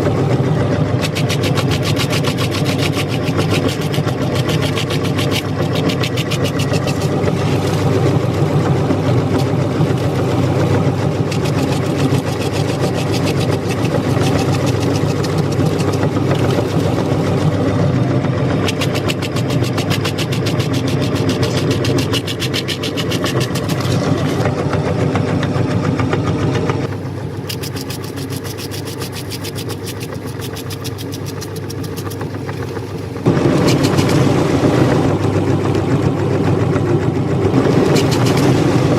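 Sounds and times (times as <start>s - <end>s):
meat grinder motor running: 0.0s - 38.9s
cookie crunching and crackling: 1.0s - 17.6s, 18.6s - 24.4s, 26.9s - 34.2s.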